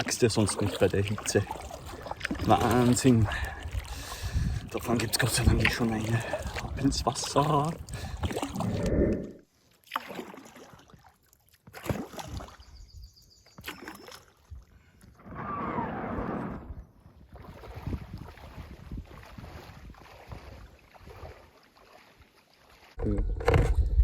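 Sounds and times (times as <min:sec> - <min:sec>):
water splashing from paddling: 0:00.0 - 0:08.9, 0:09.6 - 0:12.8, 0:13.6 - 0:14.6, 0:17.3 - 0:23.0.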